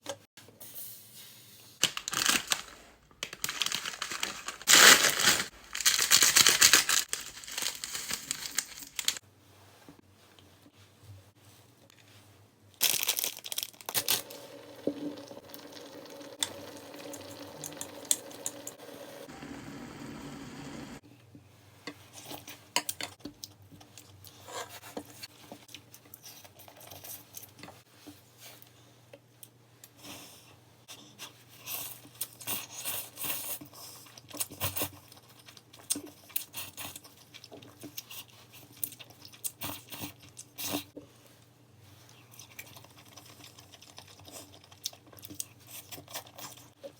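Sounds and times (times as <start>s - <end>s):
food packaging crinkling and tearing: 1.8s - 9.2s, 12.8s - 14.8s.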